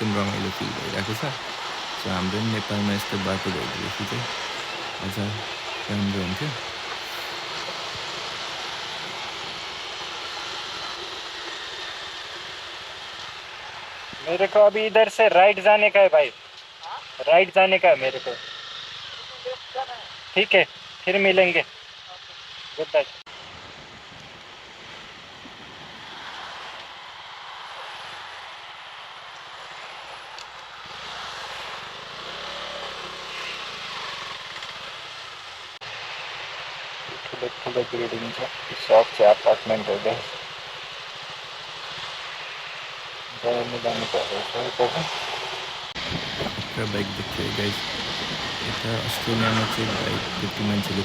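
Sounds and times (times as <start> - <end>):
road noise: 0.0 - 51.0
motorcycle engine: 30.8 - 35.8
wind rushing on microphone: 46.0 - 51.0.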